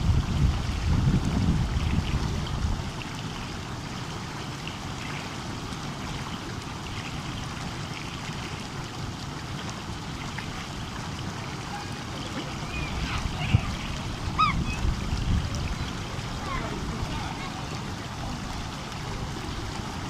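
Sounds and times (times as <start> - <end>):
stream babbling: 0.0 - 20.0.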